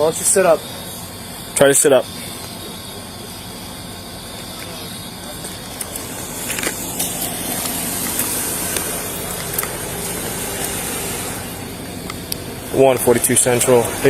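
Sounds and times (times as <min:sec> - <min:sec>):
vehicle engines idling: 0:00.0 - 0:14.0
crackling clicks: 0:05.4 - 0:12.5
hiss: 0:05.8 - 0:14.0.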